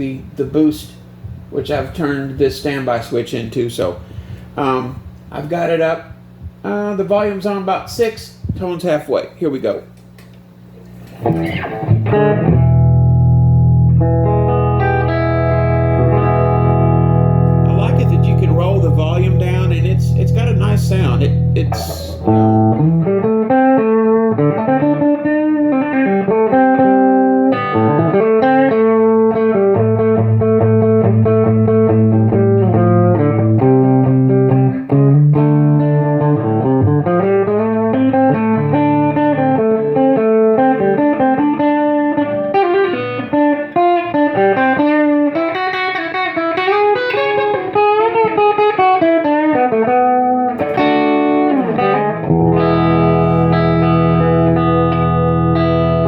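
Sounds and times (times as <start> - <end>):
electric guitar single-note lines: 11.3 - 56.0.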